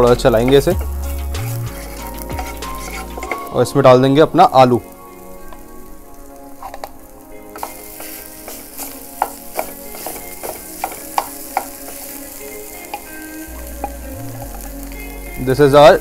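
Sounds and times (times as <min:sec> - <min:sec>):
food sizzling in a frying pan: 0:00.0 - 0:16.0
wooden spatula scraping a pan: 0:00.3 - 0:03.7, 0:06.6 - 0:13.1.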